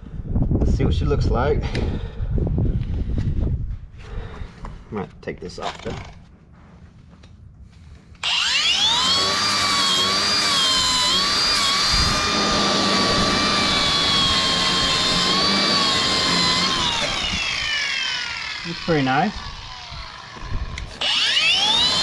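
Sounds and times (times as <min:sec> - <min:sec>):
power tool grinding metal: 0:08.2 - 0:22.0.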